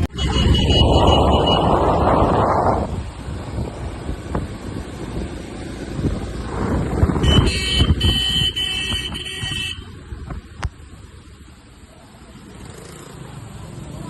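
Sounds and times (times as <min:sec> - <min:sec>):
wind rushing on microphone: 0:00.0 - 0:11.0
road rumble: 0:00.0 - 0:14.0
vehicle horn high tone: 0:00.1 - 0:02.0, 0:07.2 - 0:09.9.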